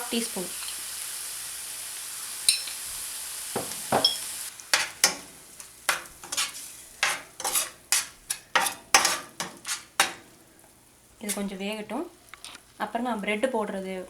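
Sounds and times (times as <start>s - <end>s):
food sizzling in oil: 0.0s - 12.3s
utensil scraping pan: 5.9s - 10.2s.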